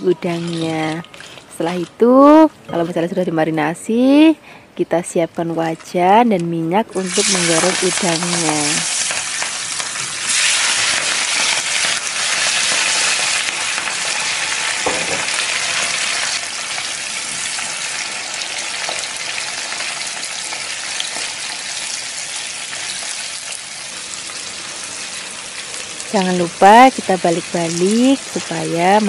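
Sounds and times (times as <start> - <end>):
prawns sizzling in hot oil: 6.9 - 29.0.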